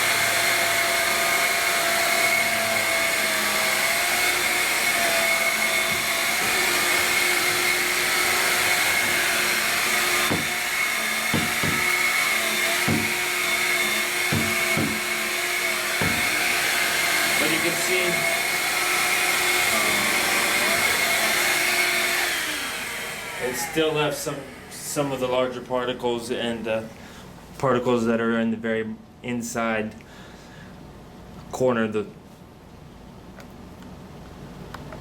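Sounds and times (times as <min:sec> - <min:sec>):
stick vacuum running: 0:00.0 - 0:25.4
short knocks: 0:11.3 - 0:12.0, 0:14.3 - 0:15.2.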